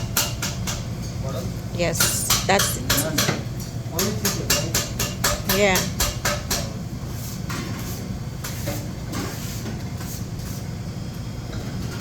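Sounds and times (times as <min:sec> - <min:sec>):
kitchen equipment hum: 0:00.0 - 0:12.0.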